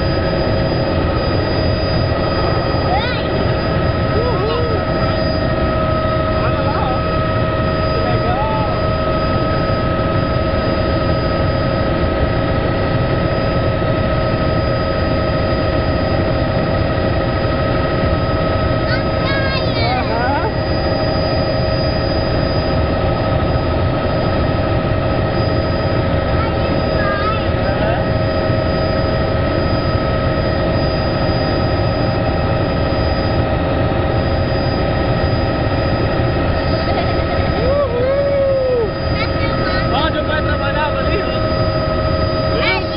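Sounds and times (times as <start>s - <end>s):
constant whine: 0.0s - 42.9s
helicopter engine and rotor noise: 0.0s - 42.9s.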